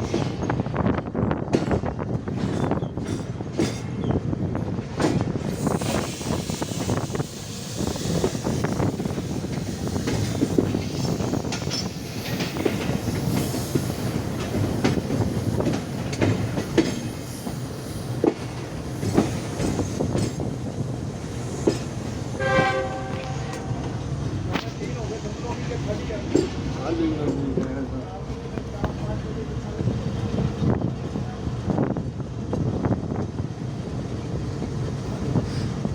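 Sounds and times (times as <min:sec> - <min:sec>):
train wheels rumbling on rails: 0:00.0 - 0:35.9
wheels clicking over rail joints: 0:09.4 - 0:22.2.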